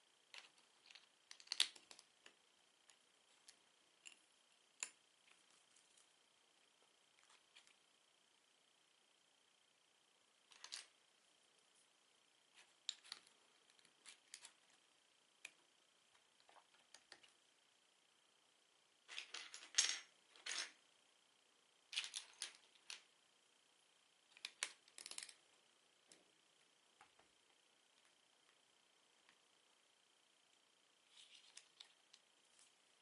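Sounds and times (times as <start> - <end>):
plastic bricks clicking and rattling: 0.4 - 2.1, 24.4 - 25.4.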